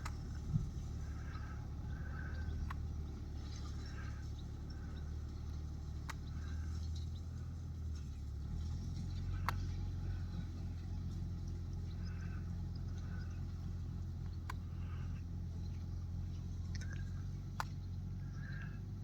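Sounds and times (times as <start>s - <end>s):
tractor engine droning: 0.0s - 19.0s
sharp clicks: 2.3s - 3.0s, 9.4s - 9.7s, 14.2s - 14.8s, 16.7s - 17.9s.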